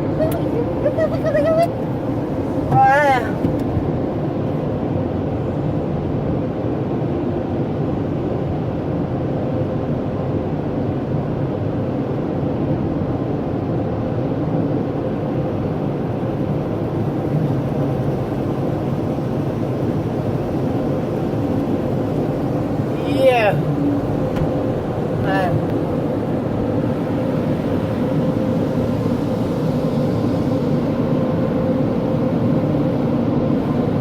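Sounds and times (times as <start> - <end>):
car wash machinery and spray: 0.0 - 34.0
faint steady hum: 14.8 - 34.0.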